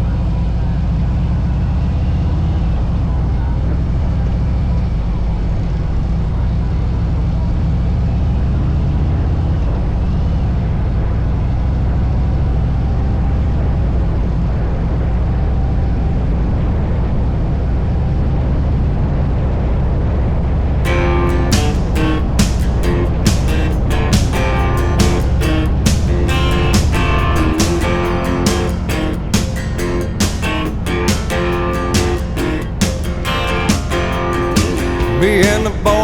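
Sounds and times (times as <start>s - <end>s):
motorcycle engine drone: 20.9s - 35.9s.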